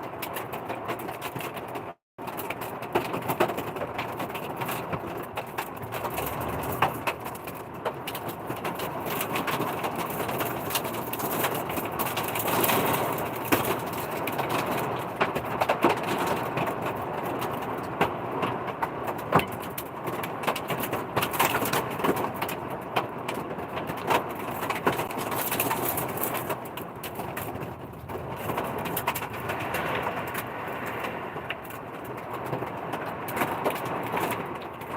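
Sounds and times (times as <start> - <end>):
heavy rain on truck: 0.0 - 34.9
hailstones striking metal: 19.0 - 34.9.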